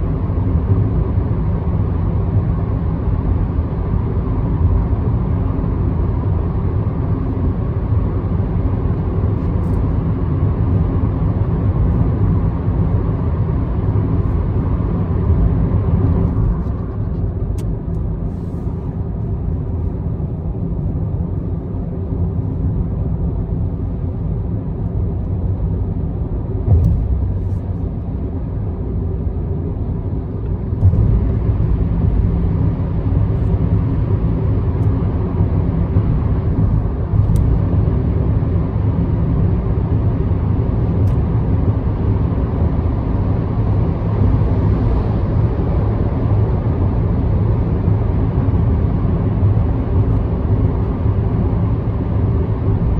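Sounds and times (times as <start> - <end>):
car road and engine rumble: 0.0 - 52.9
car bump: 26.7 - 27.6.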